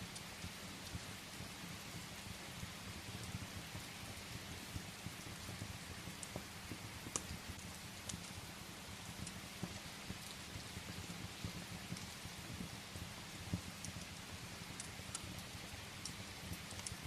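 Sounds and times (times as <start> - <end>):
firewood crackling and popping: 0.0 - 17.0
steady rain falling: 0.0 - 17.0.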